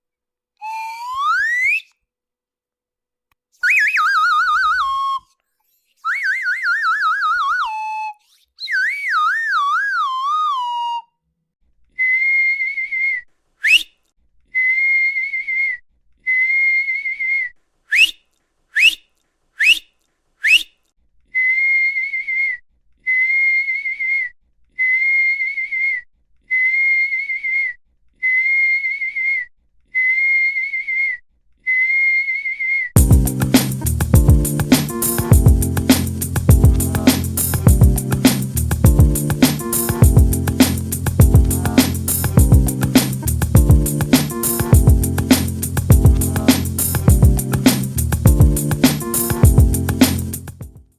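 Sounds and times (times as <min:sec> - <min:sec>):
high warbling whistles: 0:00.6 - 0:01.9
short steady high whistles: 0:00.6 - 0:01.9, 0:13.6 - 0:13.9, 0:17.9 - 0:18.2.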